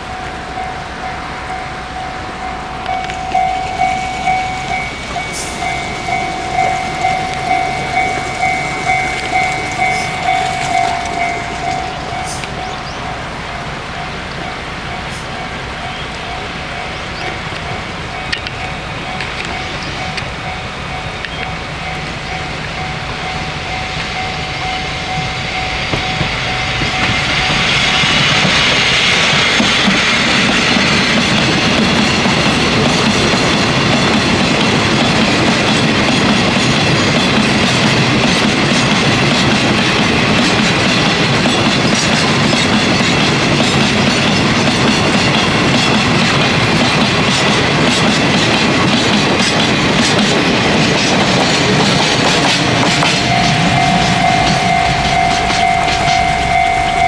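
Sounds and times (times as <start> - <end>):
diesel locomotive passing: 0.0 - 57.0
freight wagons rolling past: 0.0 - 57.0
wheels clicking over rail joints: 2.5 - 13.1, 16.1 - 22.8, 29.6 - 57.0.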